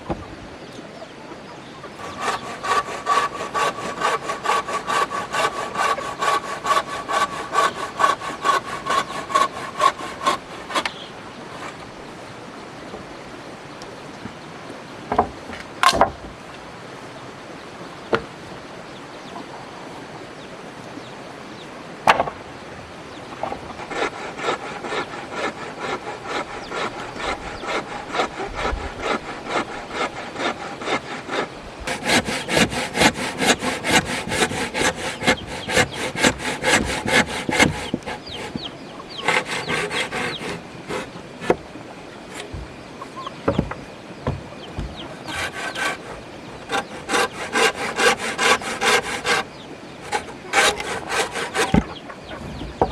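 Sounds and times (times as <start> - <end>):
hand saw cutting wood: 2.0 - 11.0, 23.8 - 41.6, 42.2 - 42.7, 44.8 - 52.0.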